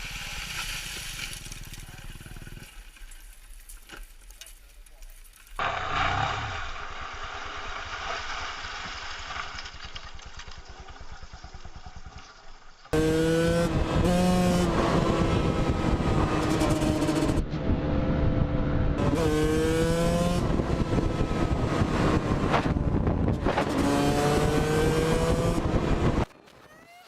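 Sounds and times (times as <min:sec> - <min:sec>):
motorcycle engine revving: 0:01.4 - 0:02.9, 0:12.9 - 0:26.3.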